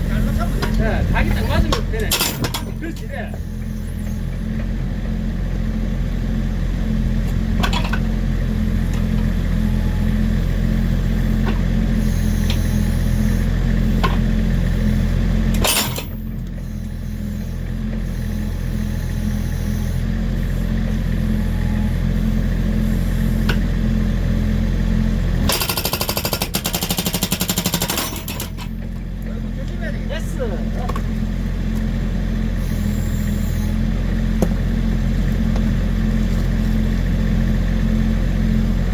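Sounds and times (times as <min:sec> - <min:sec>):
diesel engine under load: 0:00.0 - 0:38.9
hydraulic breaker hammering log: 0:01.6 - 0:03.4, 0:25.4 - 0:29.0.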